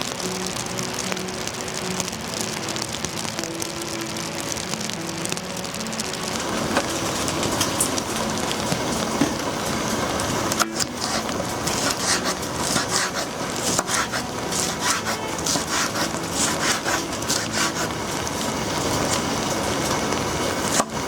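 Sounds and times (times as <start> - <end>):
rain patter: 0.0 - 21.0
soft background music: 0.0 - 21.0.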